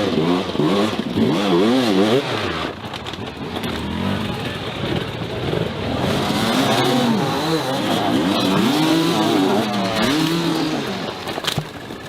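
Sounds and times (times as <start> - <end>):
dirt bike engine revving: 0.0 - 11.4.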